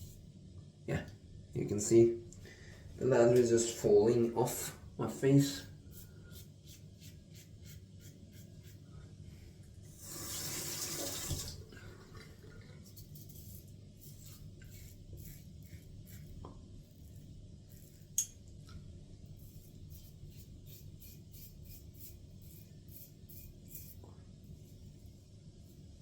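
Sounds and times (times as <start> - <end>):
running water: 10.0 - 12.9
razor scraping stubble: 12.9 - 16.4, 19.4 - 24.0.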